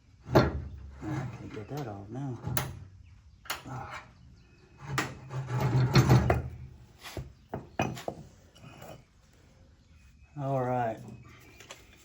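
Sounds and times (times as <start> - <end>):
metal clunks and knocks: 0.2 - 2.9, 4.8 - 9.0
metal scraping: 4.8 - 7.2.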